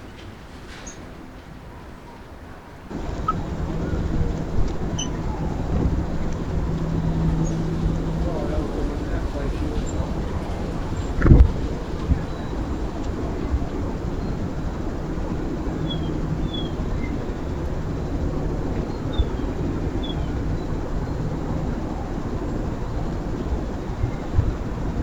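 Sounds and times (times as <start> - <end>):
low outdoor rumble: 2.9 - 25.0
faint bird chirps: 4.8 - 6.3.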